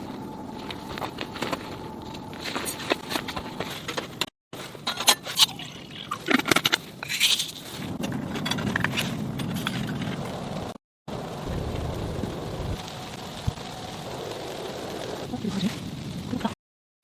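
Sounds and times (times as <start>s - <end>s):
steady rushing sizzling noise: 0.0s - 6.2s, 6.8s - 16.6s.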